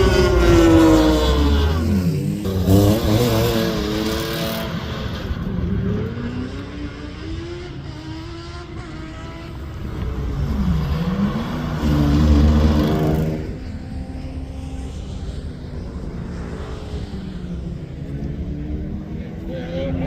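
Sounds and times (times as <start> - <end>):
rally car engine passing: 0.0 - 20.0.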